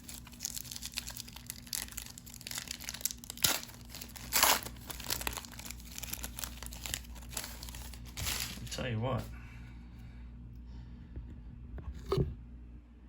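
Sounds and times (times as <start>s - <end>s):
card pack wrapper crinkling: 0.0s - 8.8s.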